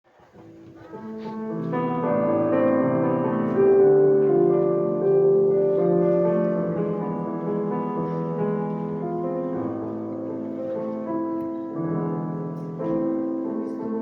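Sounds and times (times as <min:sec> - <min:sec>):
sustained keyboard chords: 0:00.5 - 0:14.0.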